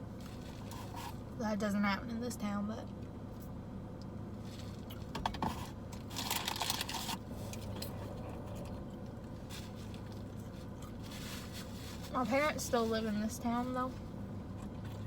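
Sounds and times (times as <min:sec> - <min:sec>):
low steady hum: 0:00.0 - 0:15.0
paper wrapper crinkling: 0:06.0 - 0:07.2.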